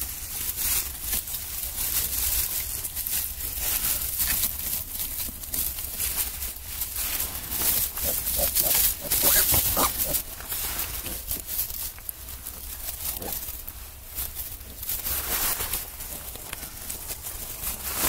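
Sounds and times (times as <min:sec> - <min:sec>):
scrabbling and rustling: 0:00.0 - 0:18.0
piglets squeaking and grunting: 0:01.2 - 0:14.0.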